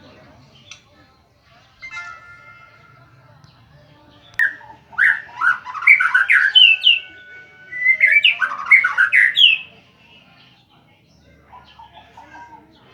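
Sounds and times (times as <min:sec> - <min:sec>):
bird singing loudly: 0:04.3 - 0:09.8.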